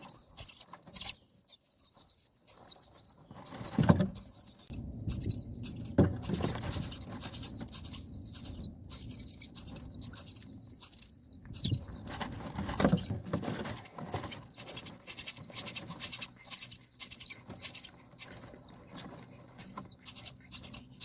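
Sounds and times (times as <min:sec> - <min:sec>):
nestlings begging chirps: 0:00.0 - 0:21.0
low thumps in nest: 0:03.5 - 0:04.4, 0:05.0 - 0:16.0.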